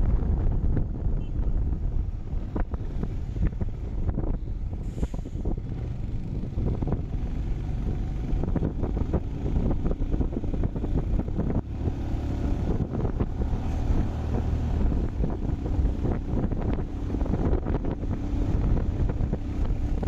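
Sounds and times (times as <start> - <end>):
wind buffeting microphone: 0.0 - 20.0
motorcycle engine running: 5.5 - 20.0.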